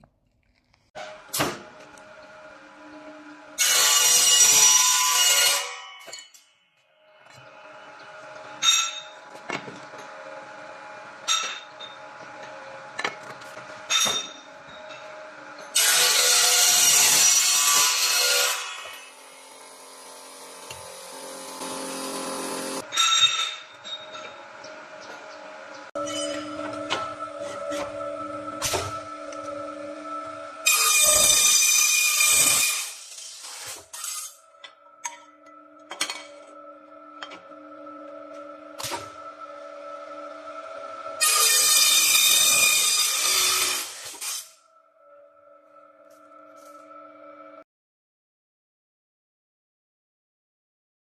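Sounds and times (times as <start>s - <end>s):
machine cutting metal harshly: 1.0s - 5.8s, 7.4s - 24.9s, 26.0s - 44.6s
metal clinking and clanking: 8.6s - 10.2s, 11.2s - 15.2s, 22.8s - 24.5s, 26.0s - 28.0s, 34.0s - 36.6s
cutting machine cut: 14.9s - 22.9s
machine humming: 19.2s - 22.8s, 23.9s - 31.0s.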